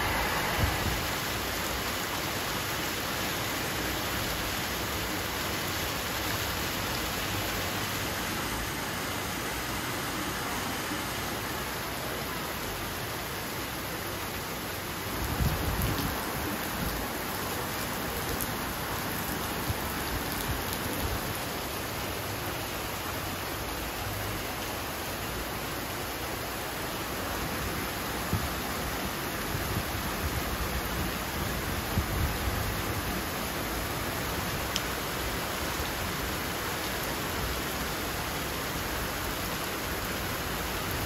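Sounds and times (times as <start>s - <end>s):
low rumble: 0.0s - 2.0s
heavy rain on paving: 0.0s - 41.0s.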